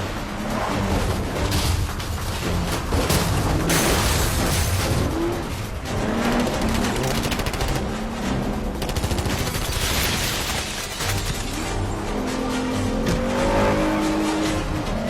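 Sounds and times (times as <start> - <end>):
film music score: 0.0 - 15.0
automatic gunfire: 6.4 - 8.0, 8.8 - 11.3.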